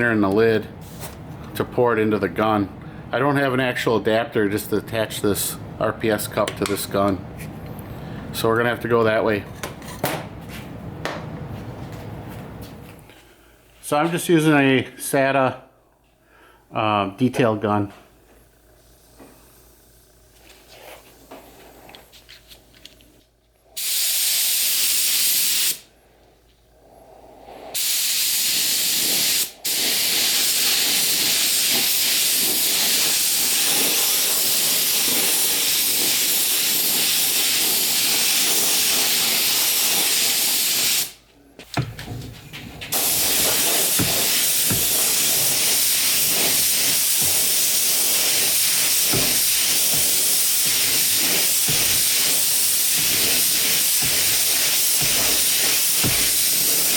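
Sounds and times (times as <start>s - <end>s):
spray gun hissing air: 23.8s - 25.9s, 27.6s - 41.2s, 42.9s - 56.9s.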